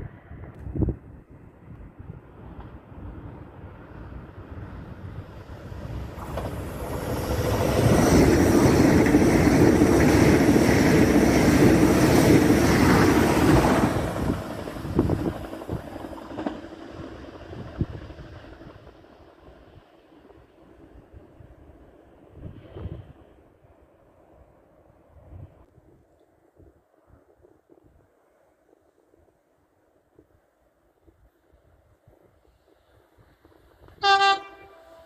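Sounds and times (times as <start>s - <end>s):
high-speed train rushing past: 0.0s - 25.6s, 32.1s - 35.0s.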